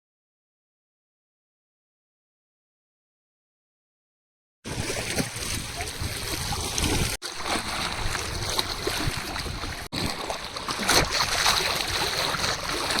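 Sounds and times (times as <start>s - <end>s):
wind: 4.6s - 13.0s
river water flowing: 4.7s - 13.0s.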